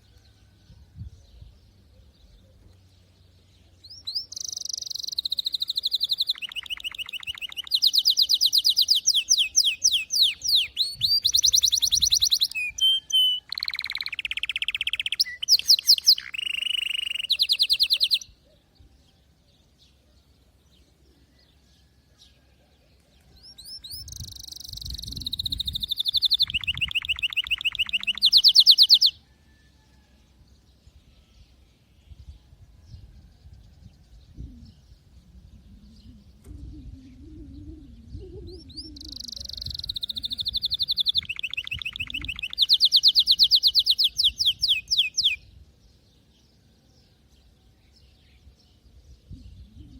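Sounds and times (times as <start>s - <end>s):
canary singing trills: 3.6s - 18.7s, 23.4s - 29.3s, 34.4s - 45.5s.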